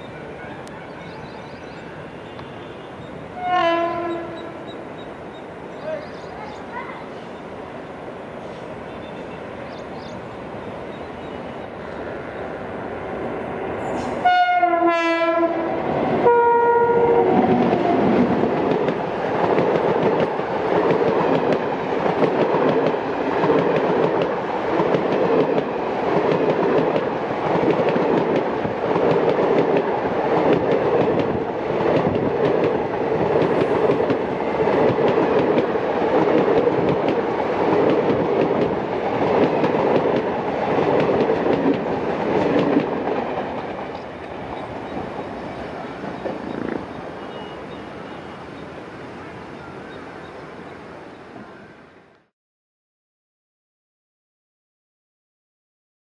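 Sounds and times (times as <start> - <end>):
electric locomotive rumbling: 0.0 - 52.3
locomotive horn blasts: 2.1 - 4.7, 14.2 - 17.4.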